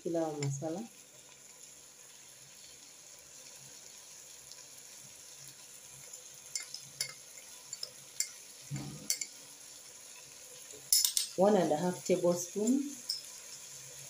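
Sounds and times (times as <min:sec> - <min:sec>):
food sizzling faintly in a pot: 0:00.0 - 0:14.0
metal spoon clinking on a saucer: 0:06.5 - 0:08.4, 0:09.0 - 0:09.4, 0:10.9 - 0:11.4, 0:13.0 - 0:13.4.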